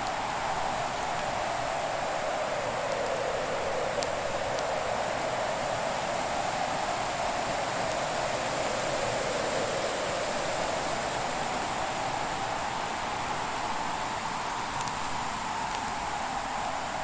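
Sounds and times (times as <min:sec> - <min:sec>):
faint fire crackles: 0:00.0 - 0:17.0.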